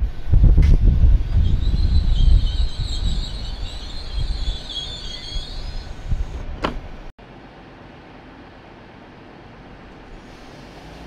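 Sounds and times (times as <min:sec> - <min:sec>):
wheel squeal: 0:01.2 - 0:06.5.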